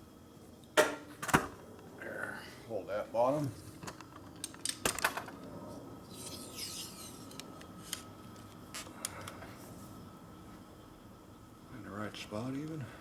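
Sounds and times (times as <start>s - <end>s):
metal rubbing and scraping: 6.0s - 8.0s.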